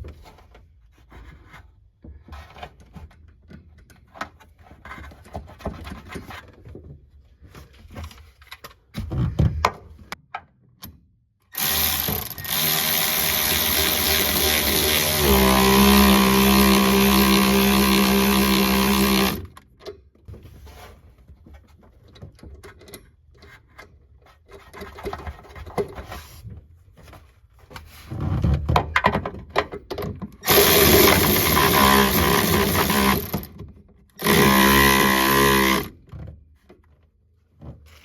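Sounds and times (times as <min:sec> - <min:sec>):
power tool whirring: 0:11.5 - 0:19.5, 0:30.4 - 0:33.5, 0:34.2 - 0:36.0.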